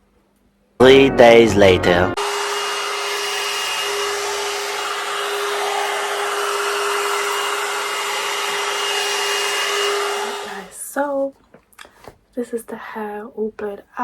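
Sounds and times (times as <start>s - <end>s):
hair dryer blowing: 2.2s - 10.9s.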